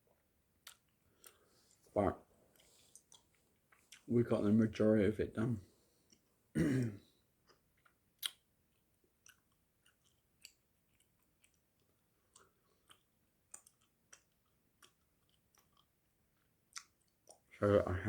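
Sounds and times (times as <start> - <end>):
mouth chewing gum: 7.5 - 8.4, 9.2 - 17.5.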